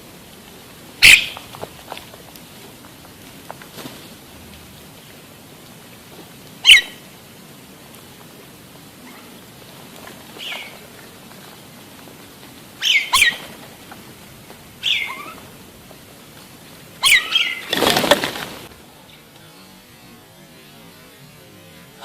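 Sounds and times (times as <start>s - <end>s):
wing flapping: 0.0s - 22.0s
bird giving sharp downward calls: 1.0s - 1.6s, 6.6s - 7.1s, 12.7s - 13.6s, 14.8s - 15.6s, 17.0s - 18.1s.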